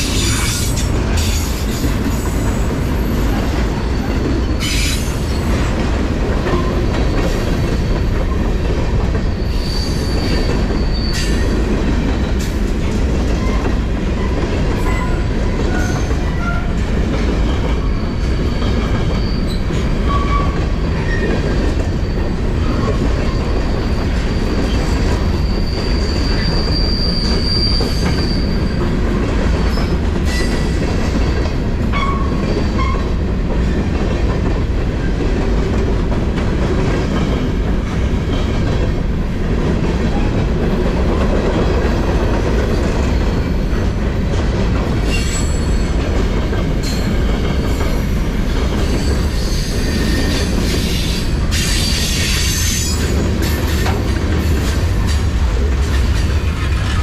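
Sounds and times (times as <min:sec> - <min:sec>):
freight train wheels rumbling: 0:00.0 - 0:57.0
high wheel squeal: 0:09.3 - 0:11.6, 0:17.8 - 0:21.3, 0:21.9 - 0:28.8, 0:48.8 - 0:53.1.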